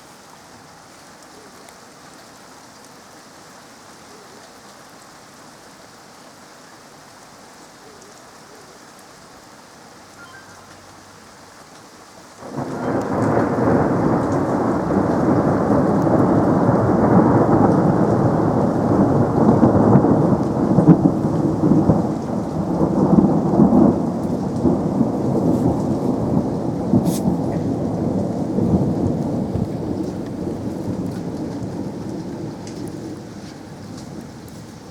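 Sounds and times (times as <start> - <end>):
steady rain: 0.0 - 34.9
rolling thunder: 12.4 - 34.9.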